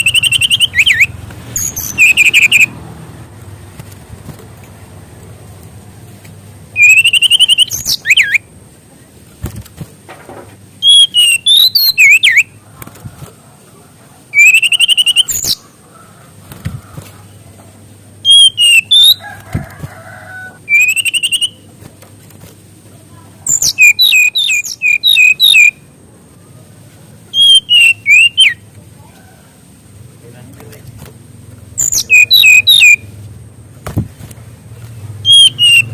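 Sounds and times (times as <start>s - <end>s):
bird singing whistled phrases: 0.0s - 2.7s, 6.8s - 8.4s, 10.8s - 12.5s, 14.4s - 15.6s, 18.2s - 19.2s, 20.7s - 21.6s, 23.5s - 25.8s, 27.3s - 28.6s, 31.8s - 33.0s, 35.2s - 35.9s.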